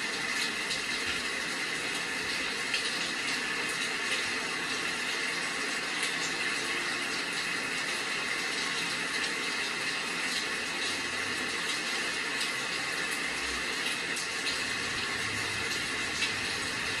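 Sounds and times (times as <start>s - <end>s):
steady rain hiss: 0.0s - 17.0s
raindrops pattering: 13.8s - 17.0s.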